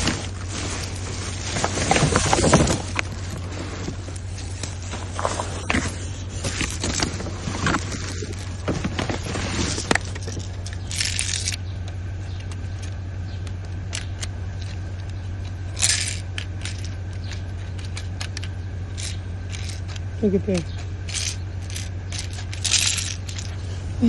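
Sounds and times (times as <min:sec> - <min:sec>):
loud rustling rushes: 0:00.0 - 0:11.5
rustles clatters and knocks: 0:00.0 - 0:23.8
steady low hum: 0:00.0 - 0:24.0.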